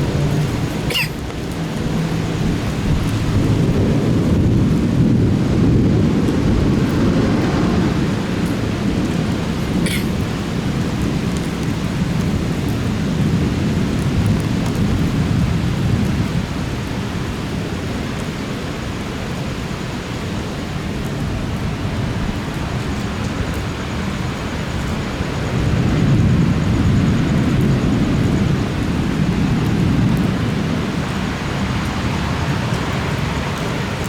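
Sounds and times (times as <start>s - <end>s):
thunder rumbling: 0.0s - 17.7s, 24.6s - 34.0s
steady rain: 0.0s - 34.0s.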